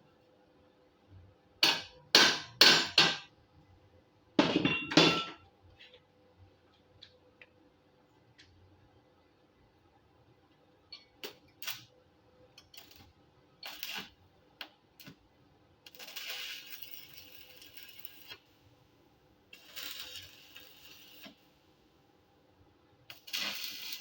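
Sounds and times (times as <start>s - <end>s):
electric arc welding crackle: 11.2s - 11.9s, 12.6s - 15.2s, 15.8s - 18.6s, 19.5s - 21.6s, 23.0s - 24.0s.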